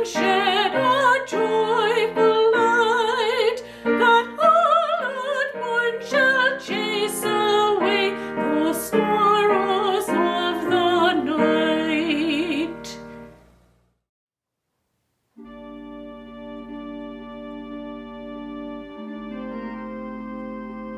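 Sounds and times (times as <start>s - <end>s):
classical solo singing with vibrato: 0.0s - 13.0s
piano accompaniment: 0.0s - 13.4s, 15.4s - 20.9s.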